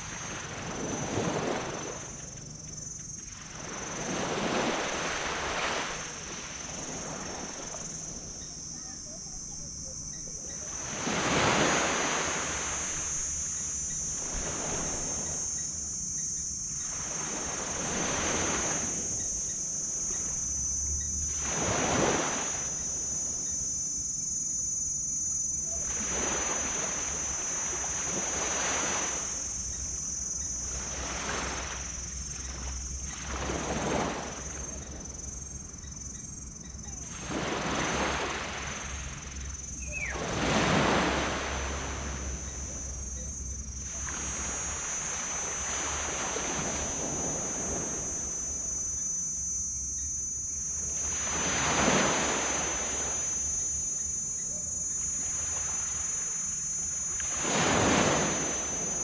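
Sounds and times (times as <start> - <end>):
small waves washing on beach: 0.0 - 2.5, 3.2 - 8.8, 10.6 - 15.5, 16.8 - 19.2, 21.3 - 23.4, 25.4 - 29.6, 37.0 - 39.3, 39.9 - 49.2, 50.9 - 53.4, 54.8 - 59.0
high-pitched whine: 0.0 - 59.0.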